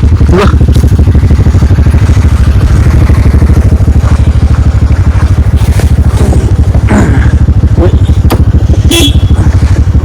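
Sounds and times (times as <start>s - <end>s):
scooter engine running: 0.0s - 10.0s.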